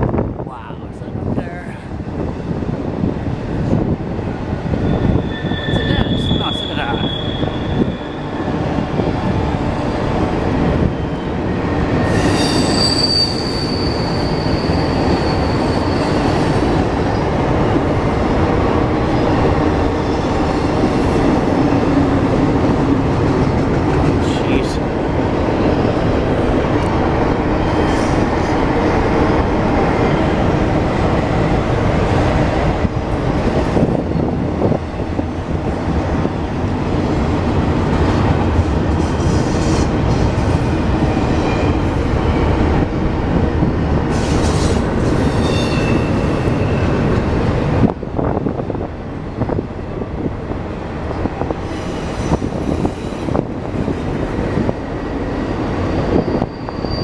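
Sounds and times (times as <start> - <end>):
train rumbling on rails: 0.0 - 57.0
high wheel squeals: 4.8 - 8.3, 12.1 - 17.4, 44.2 - 47.4, 51.7 - 53.8, 55.4 - 57.0.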